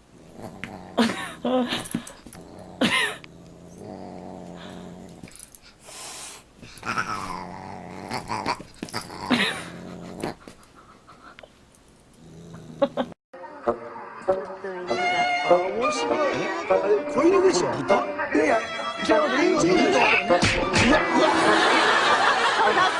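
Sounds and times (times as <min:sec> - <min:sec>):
dog growling: 0:00.0 - 0:05.9, 0:06.6 - 0:10.8, 0:12.1 - 0:13.2.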